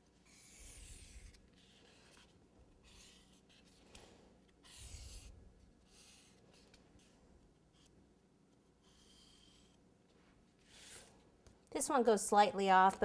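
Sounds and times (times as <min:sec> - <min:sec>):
tool scratching across cardboard: 0:00.2 - 0:03.8, 0:04.6 - 0:06.7, 0:10.6 - 0:11.2.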